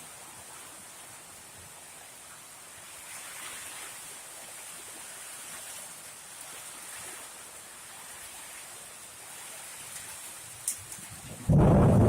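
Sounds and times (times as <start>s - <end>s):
heavy rain pouring: 10.6s - 12.0s.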